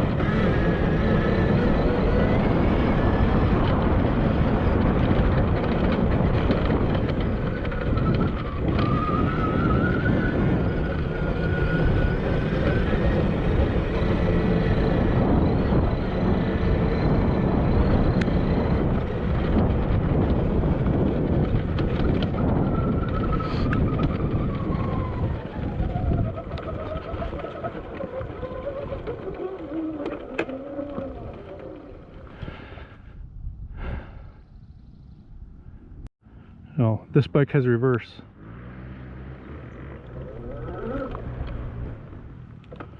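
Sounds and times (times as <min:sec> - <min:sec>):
electric motor whine: 0:00.0 - 0:32.1
wind rumble on microphone: 0:00.0 - 0:36.6, 0:38.3 - 0:42.9.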